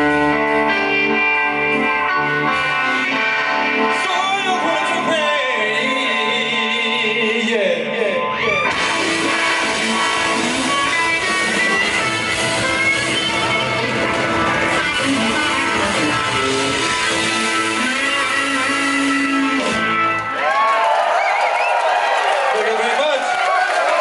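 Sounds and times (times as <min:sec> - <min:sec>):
electric guitar with bent notes: 0:00.0 - 0:20.6
blues-rock band playing: 0:00.0 - 0:20.7
drums and cymbals: 0:08.7 - 0:19.8.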